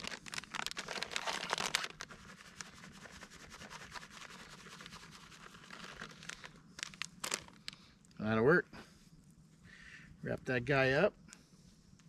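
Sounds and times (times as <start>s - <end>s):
food packaging rustling: 0.0s - 2.8s, 3.9s - 7.8s.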